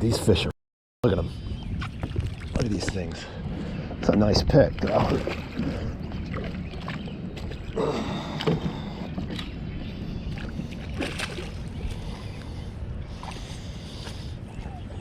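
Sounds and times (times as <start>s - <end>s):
water noise: 1.1s - 15.0s.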